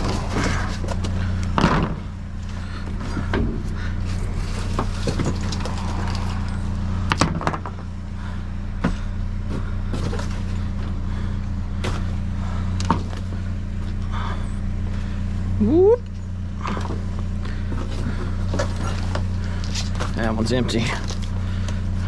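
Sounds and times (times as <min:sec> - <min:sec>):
sharp knocks and clatters: 0:00.0 - 0:02.1, 0:07.1 - 0:07.8
vehicle engine idling: 0:00.0 - 0:22.0.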